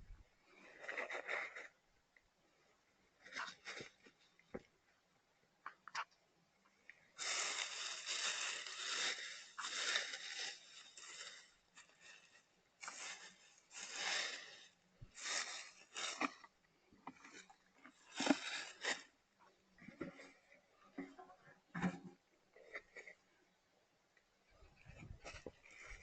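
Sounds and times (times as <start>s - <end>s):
rustling and crunching: 0.0s - 1.8s, 3.2s - 4.7s, 7.2s - 21.2s, 24.6s - 26.0s.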